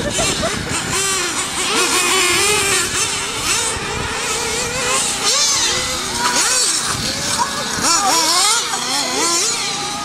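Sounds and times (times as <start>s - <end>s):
rc car motors whining: 0.0s - 10.0s.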